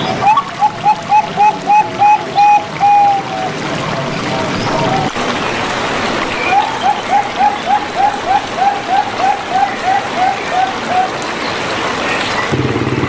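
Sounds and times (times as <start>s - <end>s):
dove cooing: 0.0s - 5.4s, 6.4s - 11.3s.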